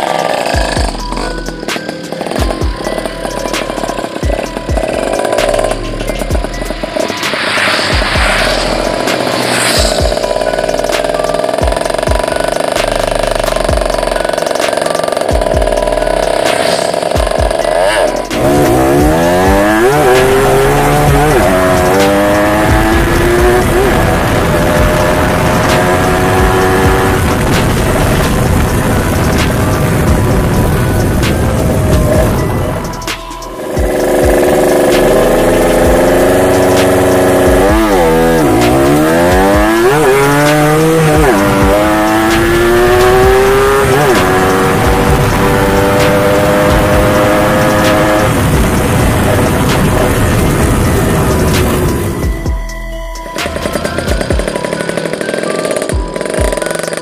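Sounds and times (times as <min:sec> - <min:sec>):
two-stroke motorcycle engine revving: 0:00.0 - 0:52.5, 0:53.4 - 0:57.0.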